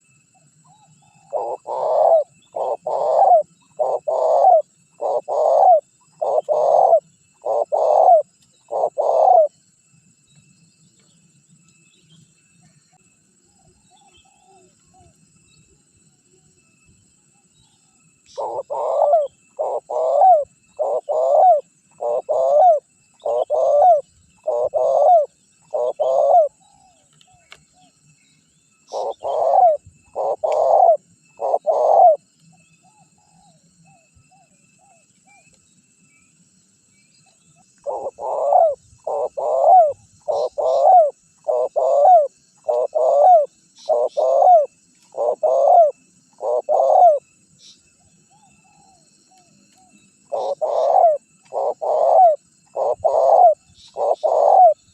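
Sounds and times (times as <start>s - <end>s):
faint bird chirps: 0.0s - 54.9s
dove cooing: 0.7s - 9.6s, 18.3s - 27.9s, 28.9s - 32.2s, 37.8s - 47.3s, 48.3s - 54.9s.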